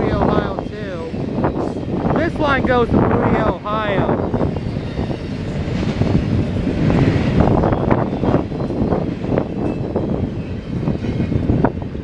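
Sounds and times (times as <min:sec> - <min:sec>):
steel wheels rumbling on rails: 0:00.0 - 0:12.0
train wheel clacks: 0:04.1 - 0:11.8.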